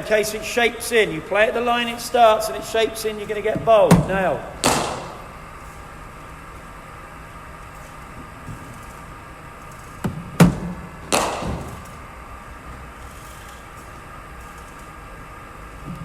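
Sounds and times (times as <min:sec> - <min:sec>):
bowling machine humming: 0:00.0 - 0:16.0
machine firing ball thud: 0:01.6 - 0:05.8, 0:10.0 - 0:12.0
ball hitting bat crack: 0:03.3 - 0:05.5, 0:10.4 - 0:11.8.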